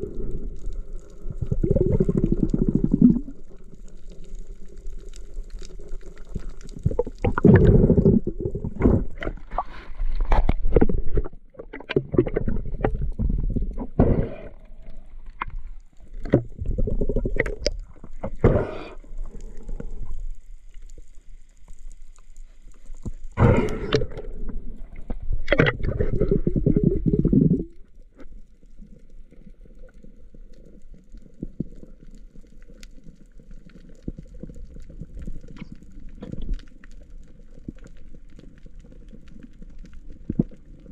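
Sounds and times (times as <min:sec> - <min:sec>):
water gurgling underwater: 0:00.0 - 0:21.1, 0:22.8 - 0:40.9.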